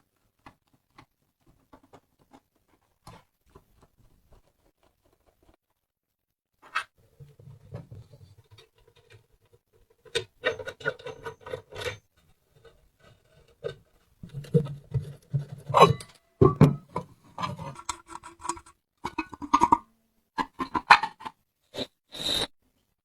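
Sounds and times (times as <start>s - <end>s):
lamp parts clicking and scraping: 10.0s - 19.8s.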